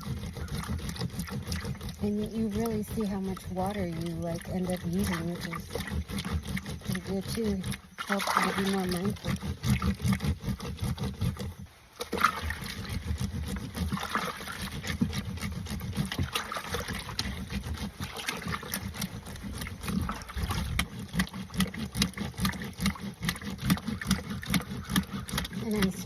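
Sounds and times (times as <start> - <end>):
water sloshing and trickling: 0.0 - 26.0
splashes and knocks: 2.5 - 11.0, 12.0 - 26.0.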